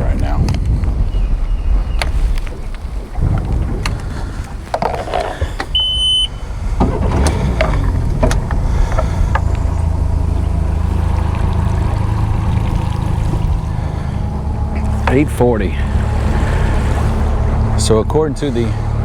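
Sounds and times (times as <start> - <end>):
outboard motor running: 0.0 - 19.0
wind noise: 0.0 - 19.0
short high beep: 5.8 - 6.3.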